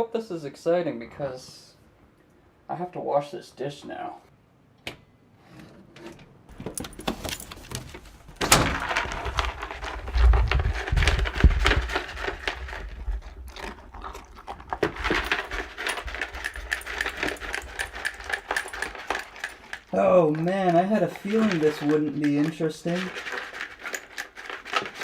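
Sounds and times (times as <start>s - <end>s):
dog crunching kibble: 8.8s - 25.0s.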